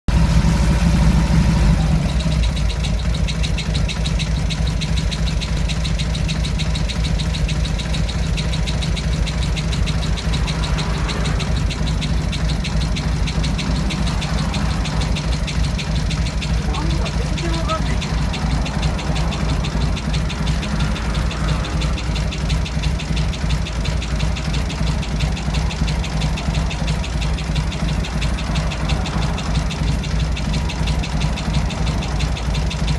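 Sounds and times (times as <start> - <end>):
high-pitched engine ticking: 0.1 - 32.9
motorcycle engine idling: 0.1 - 32.9.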